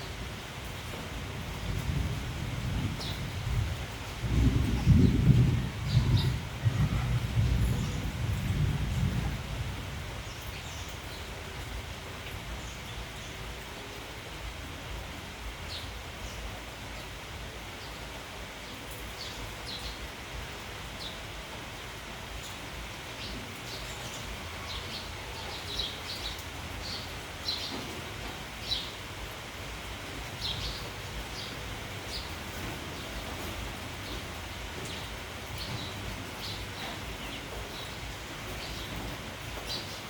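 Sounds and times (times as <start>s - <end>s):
steady rain hissing: 0.0s - 40.0s
sparrows chirping: 2.9s - 3.5s, 4.5s - 8.5s, 10.2s - 11.6s, 18.6s - 20.1s, 22.4s - 40.0s.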